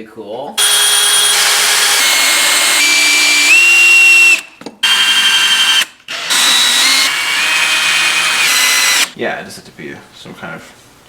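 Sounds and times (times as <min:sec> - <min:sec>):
power drill whining: 0:00.6 - 0:09.2.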